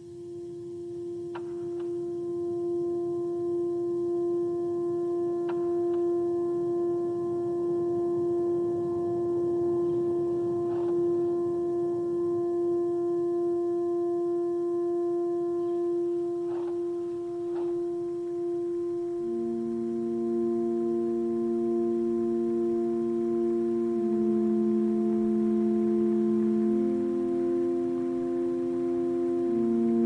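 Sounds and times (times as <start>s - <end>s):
lower synth note: 0.0s - 30.0s
synthesized drone note: 0.0s - 30.0s.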